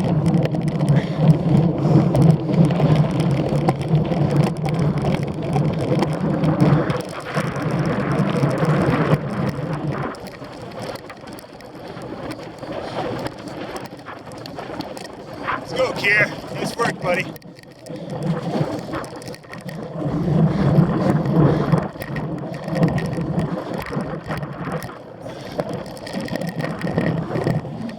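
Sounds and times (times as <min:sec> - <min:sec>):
bike tyres and frame rattling: 0:00.0 - 0:16.6, 0:17.3 - 0:27.9.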